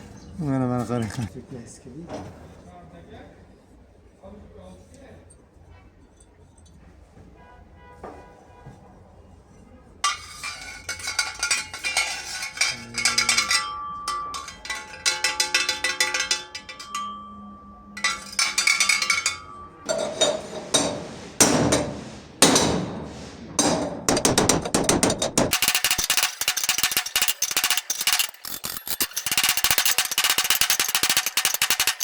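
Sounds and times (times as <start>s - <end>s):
metallic ringing: 10.0s - 21.0s, 23.6s - 32.0s
hammer striking metal: 10.0s - 32.0s.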